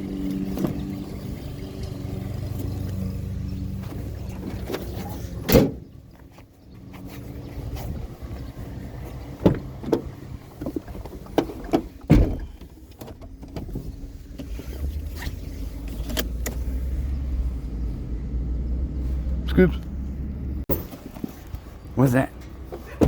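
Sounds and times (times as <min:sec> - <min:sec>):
vehicle engine running: 0:00.0 - 0:23.0
sharp knocks and clunks: 0:09.4 - 0:13.9.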